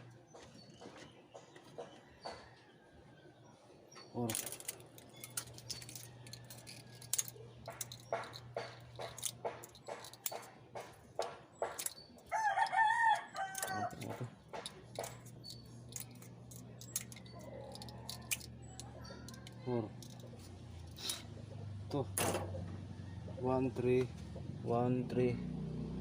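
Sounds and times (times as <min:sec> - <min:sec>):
scattered clicks and knocks: 0:04.3 - 0:21.2
rooster crowing: 0:12.3 - 0:14.2, 0:22.7 - 0:23.4.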